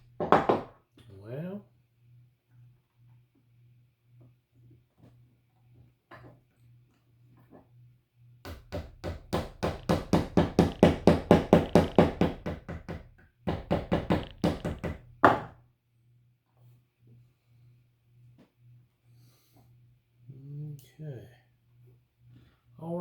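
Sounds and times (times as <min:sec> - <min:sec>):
rapid knocking on wood: 0:00.2 - 0:00.8, 0:08.5 - 0:15.6.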